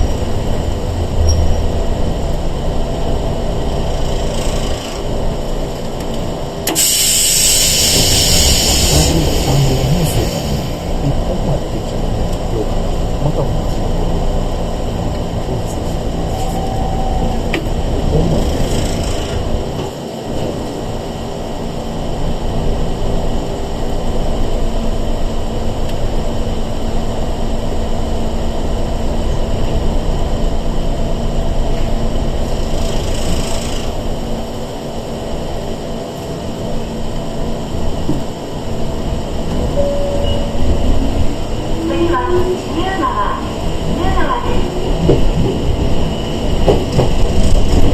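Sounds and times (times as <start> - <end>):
train interior rumble: 0.0 - 47.9.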